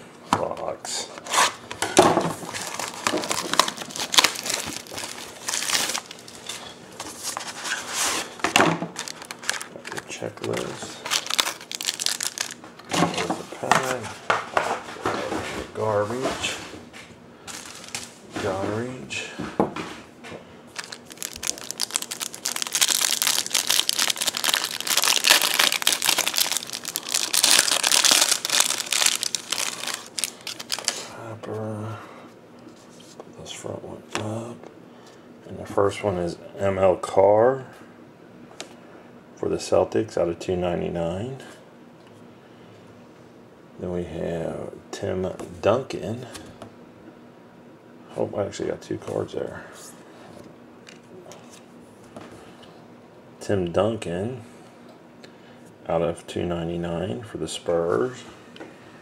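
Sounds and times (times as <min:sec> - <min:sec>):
packaging being crumpled: 0:02.4 - 0:07.6, 0:08.9 - 0:12.8, 0:17.5 - 0:18.1, 0:20.7 - 0:31.2
wrapping crinkling and tearing: 0:02.4 - 0:12.6, 0:20.7 - 0:31.2.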